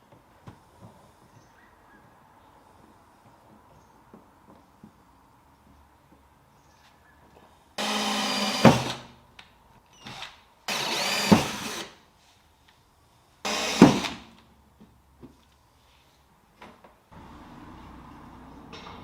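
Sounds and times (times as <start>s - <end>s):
power drill whining: 7.8s - 9.1s, 10.0s - 12.0s, 13.5s - 14.3s.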